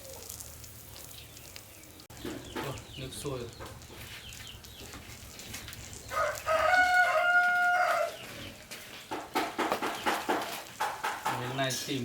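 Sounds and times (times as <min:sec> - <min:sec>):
rooster crowing: 0:06.1 - 0:08.3.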